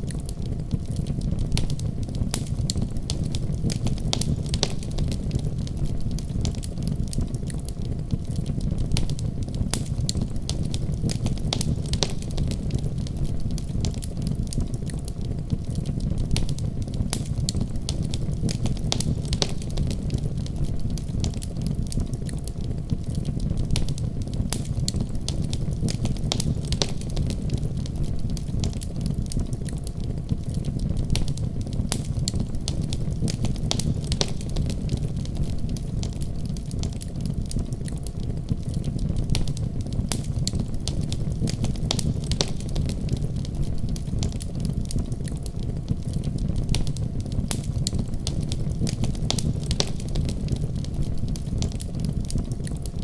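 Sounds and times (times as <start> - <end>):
fire crackling and popping: 0.0 - 53.0
wood fire rumbling: 0.0 - 53.0.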